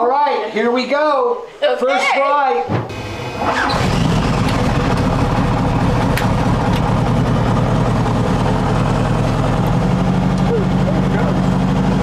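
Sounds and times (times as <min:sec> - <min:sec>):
helicopter engine and rotor idling: 0:02.9 - 0:12.0.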